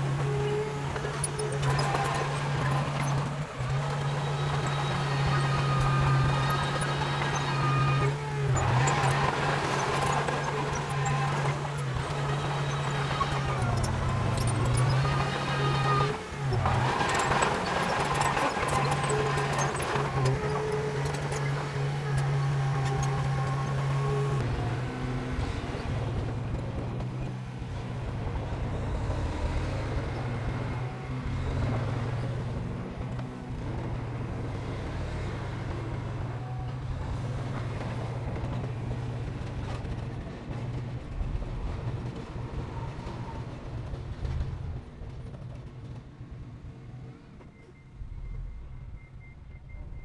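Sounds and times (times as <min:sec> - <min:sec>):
diesel engine droning: 0:00.0 - 0:50.0.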